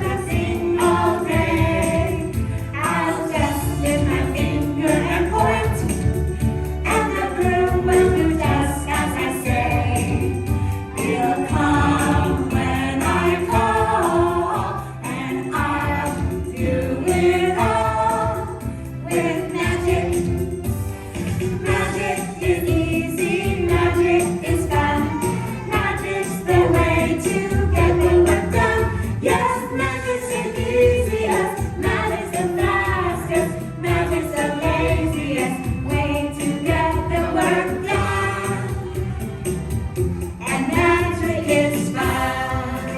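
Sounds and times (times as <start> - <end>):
backing music: 0.0 - 42.9
group of voices singing: 0.0 - 42.9.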